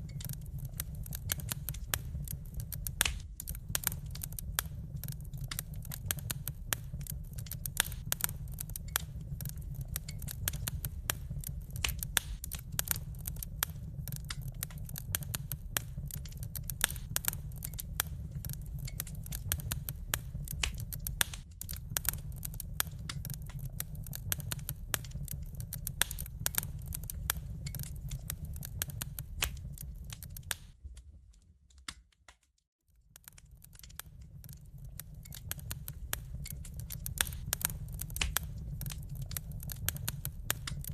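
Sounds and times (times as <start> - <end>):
low fire rumble: 0.0 - 31.9, 32.9 - 40.9
wood fire crackling: 0.0 - 40.9.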